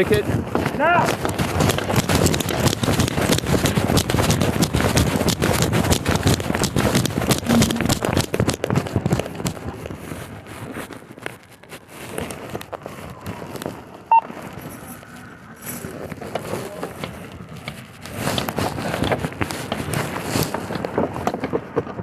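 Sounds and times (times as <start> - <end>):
short beep: 7.5 - 8.0.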